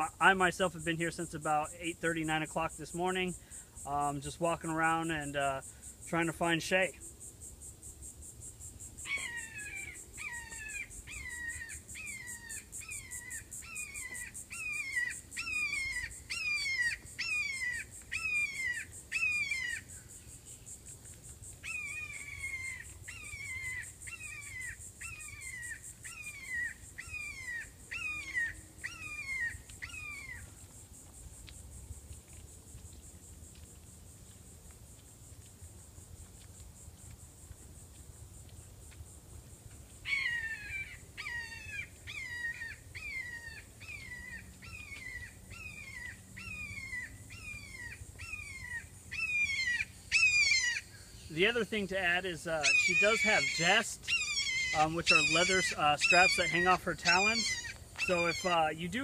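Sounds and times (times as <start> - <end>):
high insect trill: 0.0 - 59.0
hawk screaming calls: 9.0 - 19.9, 21.6 - 30.5, 40.0 - 59.0.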